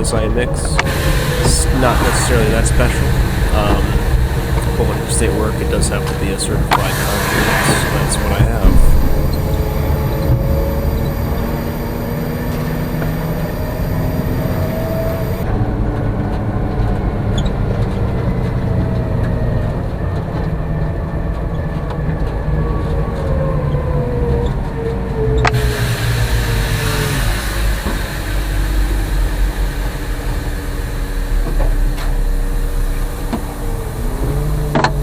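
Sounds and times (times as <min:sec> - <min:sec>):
high hiss: 0:00.0 - 0:10.1
truck diesel engine running: 0:00.0 - 0:15.4.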